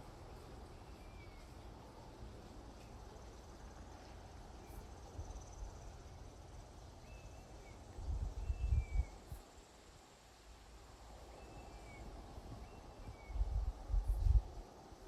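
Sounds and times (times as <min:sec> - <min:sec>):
insects chirring: 0:03.0 - 0:10.0.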